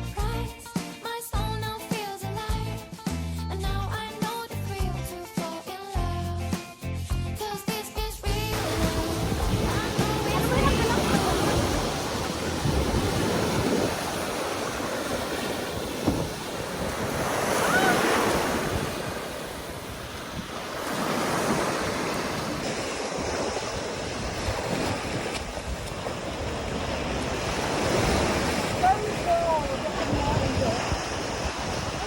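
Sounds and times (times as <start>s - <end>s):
waves breaking on a beach: 8.5s - 32.0s
wind buffeting microphone: 8.6s - 32.0s.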